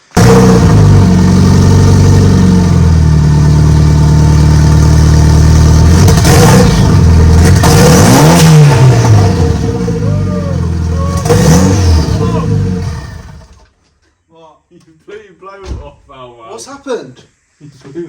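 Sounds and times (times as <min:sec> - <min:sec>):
car engine revving: 0:00.0 - 0:13.6.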